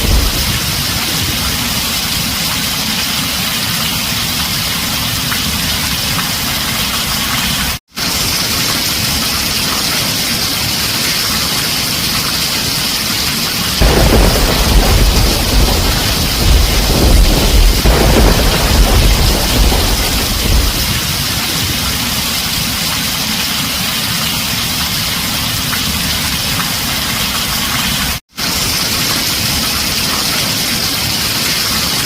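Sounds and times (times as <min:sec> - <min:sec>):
heavy rain on a tin roof: 0:00.0 - 0:32.0
deep rumble: 0:13.8 - 0:22.3.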